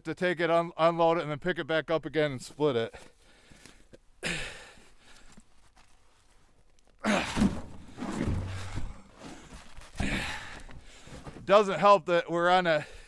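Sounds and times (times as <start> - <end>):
man breathing heavily: 3.0 - 5.4, 7.0 - 11.4.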